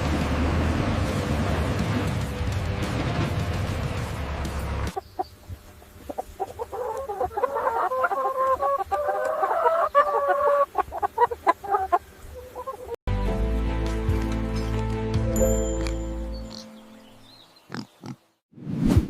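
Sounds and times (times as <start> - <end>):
chickens clucking: 4.9 - 13.0.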